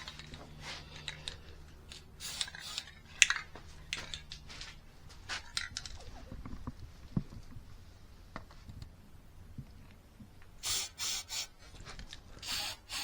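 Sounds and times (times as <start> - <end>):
spray-paint can hissing: 2.2 - 2.9, 10.6 - 11.6, 12.4 - 13.0.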